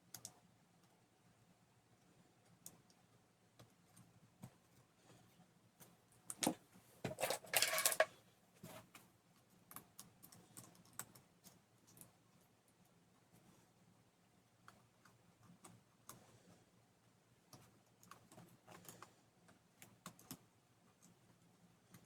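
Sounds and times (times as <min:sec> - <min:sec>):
small parts clicking and tapping: 0:05.8 - 0:08.1, 0:08.7 - 0:12.1.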